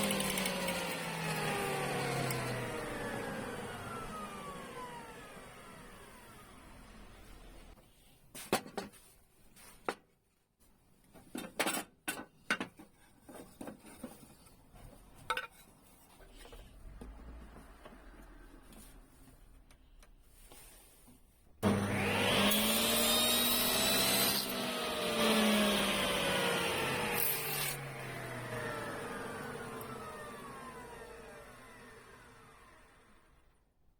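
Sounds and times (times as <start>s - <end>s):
power tool whine: 0.0s - 7.1s, 21.6s - 33.3s
clinks and knocks on workbench: 11.2s - 14.2s.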